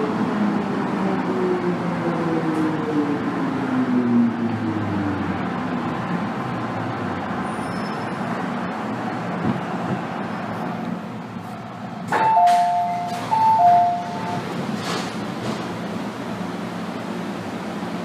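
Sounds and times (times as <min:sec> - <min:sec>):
train carriage hum: 0:08.4 - 0:18.0
train door clunk: 0:12.0 - 0:15.9
two-note door chime: 0:12.2 - 0:14.4.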